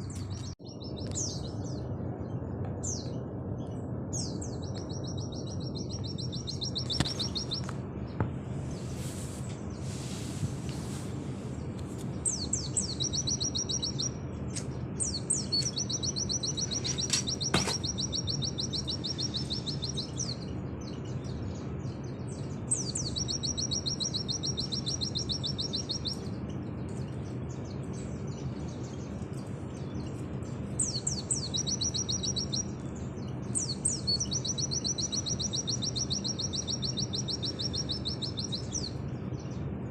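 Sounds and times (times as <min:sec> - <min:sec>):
steady low hum: 0:00.0 - 0:39.9
bird singing high trills: 0:04.1 - 0:07.7, 0:12.2 - 0:14.2, 0:15.0 - 0:26.3, 0:29.8 - 0:39.6.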